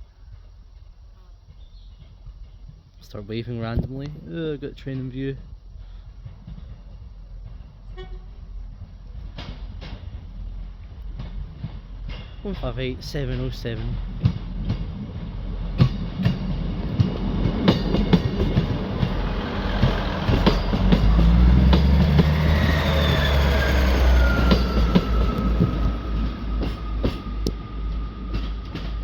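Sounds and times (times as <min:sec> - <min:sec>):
diesel engine rumble: 0:02.5 - 0:29.0
wheels clicking over rail joints: 0:04.0 - 0:29.0
whine sliding down in pitch: 0:18.2 - 0:27.9.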